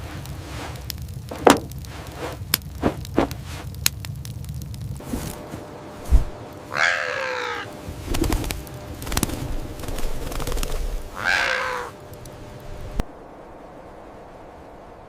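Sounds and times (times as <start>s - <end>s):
low rumble: 0.0s - 6.8s
thud: 1.3s - 1.8s
drawn-out animal calls: 6.7s - 7.8s, 11.0s - 12.0s.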